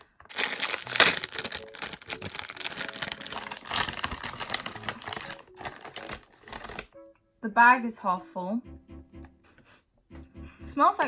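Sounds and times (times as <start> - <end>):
crisp packet crinkling: 0.0 - 7.0.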